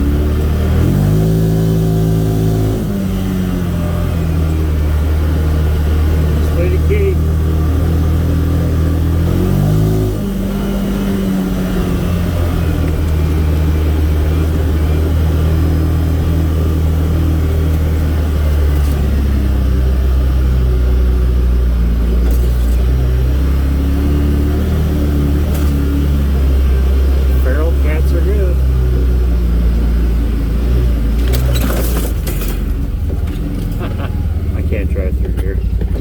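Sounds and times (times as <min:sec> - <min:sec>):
vehicle engine running: 0:00.0 - 0:36.0.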